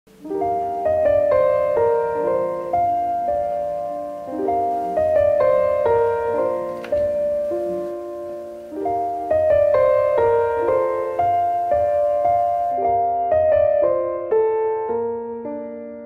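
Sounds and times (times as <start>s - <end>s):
gentle piano melody: 0.1s - 16.0s.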